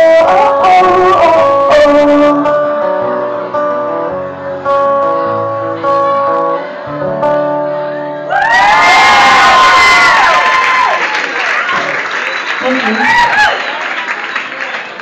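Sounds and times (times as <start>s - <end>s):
acoustic guitar chords: 0.0s - 8.3s.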